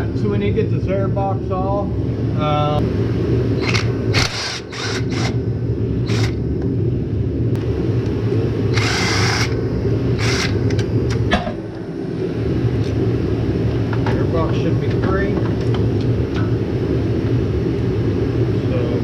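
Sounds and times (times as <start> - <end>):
steady low hum: 0.0 - 19.0
power drill running in bursts: 3.6 - 5.4, 6.0 - 6.4, 8.7 - 9.6, 10.2 - 10.6.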